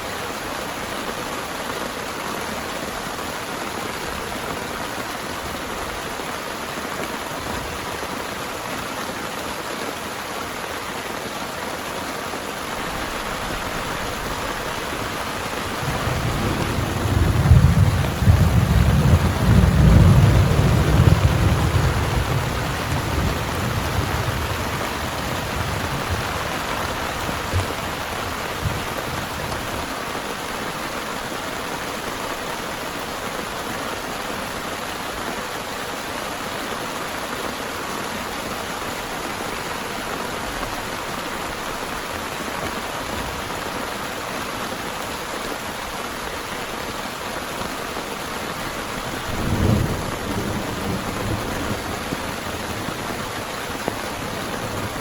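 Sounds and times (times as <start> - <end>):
heavy rain falling: 0.0 - 55.0
thunder rumble: 12.8 - 30.0, 49.0 - 55.0.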